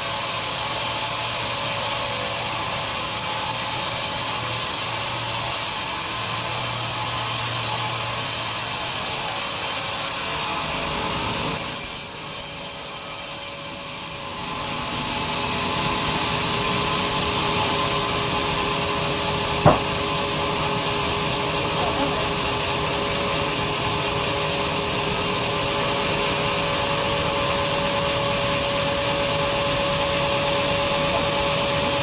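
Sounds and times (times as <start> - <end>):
bandsaw cutting through log: 0.0 - 20.1.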